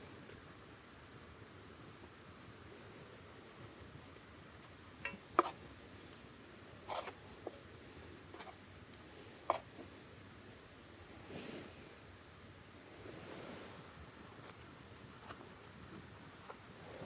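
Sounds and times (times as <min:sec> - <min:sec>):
light taps and clicks of utensils: 0:04.2 - 0:06.2.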